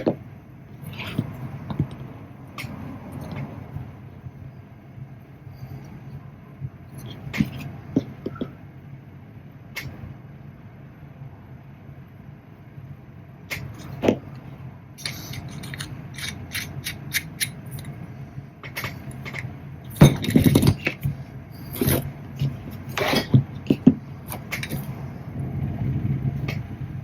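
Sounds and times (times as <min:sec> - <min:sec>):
steady low hum: 0:00.0 - 0:27.0
small metal parts clinking: 0:15.0 - 0:18.0, 0:18.9 - 0:22.1.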